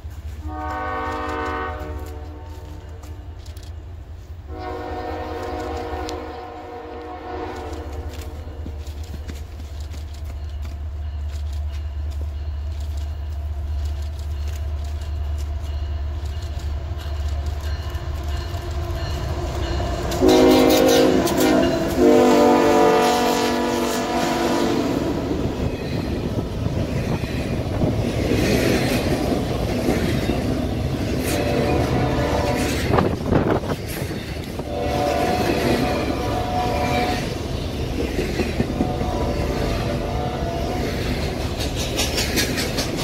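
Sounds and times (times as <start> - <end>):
train wheels rumbling and clattering: 0.0 - 43.0
train horn blasts: 0.4 - 3.4, 4.4 - 8.8, 18.4 - 25.7, 31.0 - 33.6, 34.5 - 37.4, 38.5 - 41.4.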